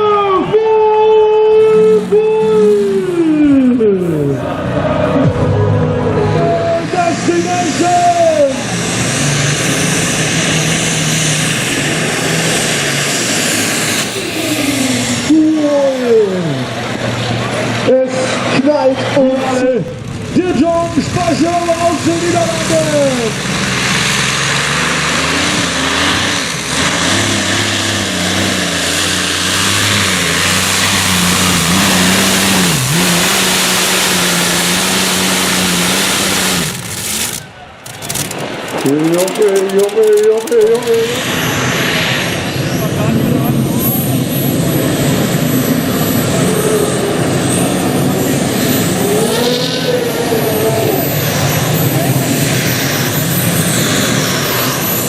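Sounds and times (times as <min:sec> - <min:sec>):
tractor engine roaring: 0:00.0 - 0:55.0.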